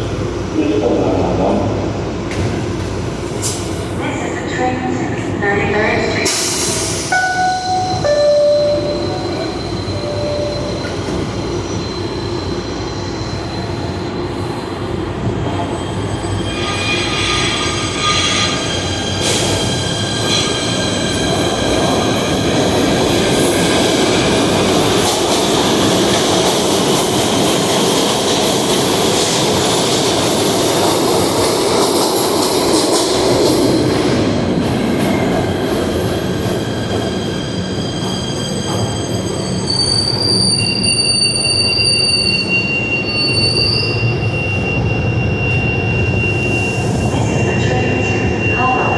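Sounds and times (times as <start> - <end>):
subway train rail rumble: 0.0 - 48.9
steel wheel squeal: 15.9 - 20.7, 37.3 - 48.9.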